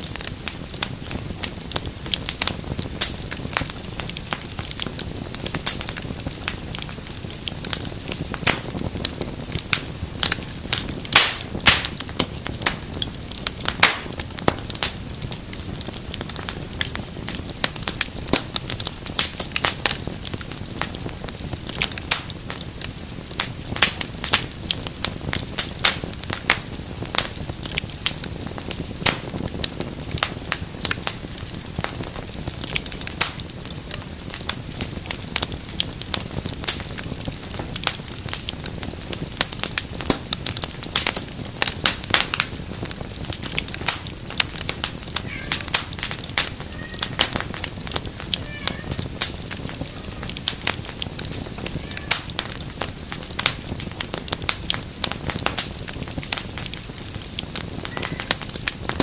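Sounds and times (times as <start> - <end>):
fire crackles and pops: 0.0 - 59.0
rush of flame: 0.0 - 59.0.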